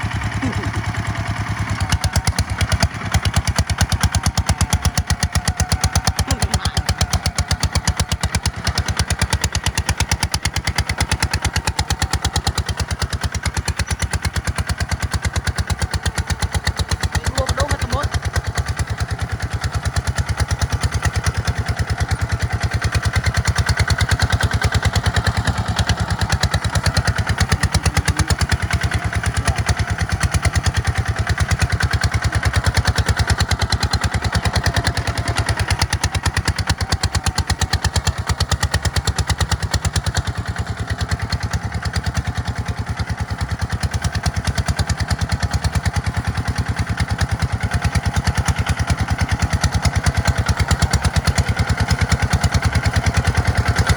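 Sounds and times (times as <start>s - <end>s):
tractor engine chugging: 0.0s - 53.9s.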